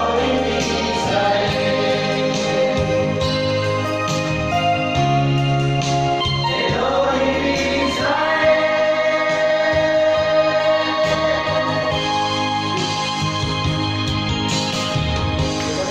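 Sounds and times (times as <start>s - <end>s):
group singing gospel song: 0.0s - 3.6s, 6.2s - 13.0s
held instrumental chords: 0.0s - 15.9s.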